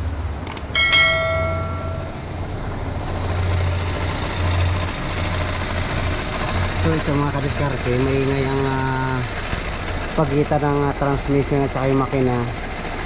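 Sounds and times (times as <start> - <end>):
clicks: 0.4 - 0.8
ringing bell chime: 0.7 - 2.3.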